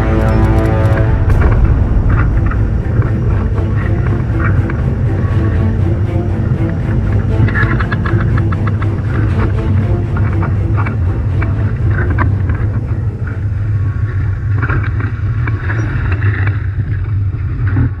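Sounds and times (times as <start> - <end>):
wind buffeting microphone: 1.0 - 9.7.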